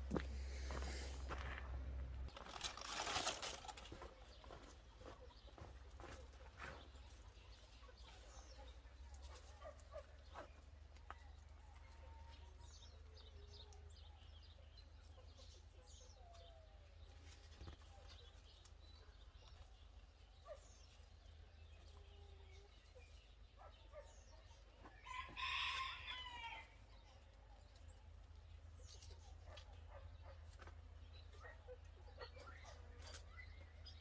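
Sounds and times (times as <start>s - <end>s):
rooster crowing: 25.0s - 26.8s.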